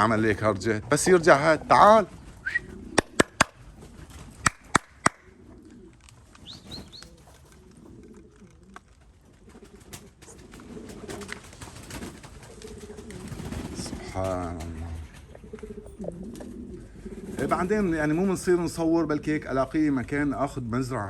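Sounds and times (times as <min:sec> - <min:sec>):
pigeons cooing: 0:00.0 - 0:20.4
sharp clicks: 0:03.0 - 0:03.6
small bird chirps: 0:06.4 - 0:07.3.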